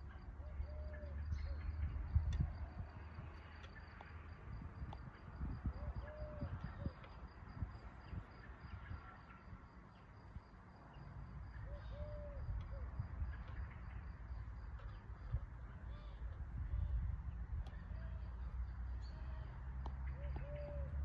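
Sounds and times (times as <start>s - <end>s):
cooing bird calls: 0.4s - 1.8s, 5.7s - 7.1s, 11.6s - 13.6s, 20.1s - 21.0s.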